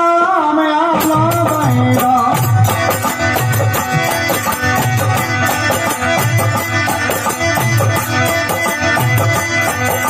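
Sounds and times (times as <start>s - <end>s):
steady drum beat: 1.0s - 10.0s
sustained melody instruments: 1.0s - 10.0s.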